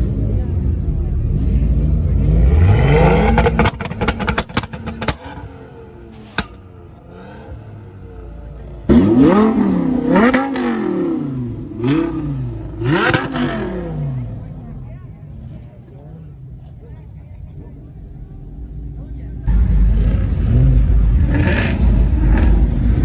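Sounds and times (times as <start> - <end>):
car engine revving: 0.0 - 16.7, 18.3 - 23.0
exhaust pops and crackles: 2.8 - 6.9.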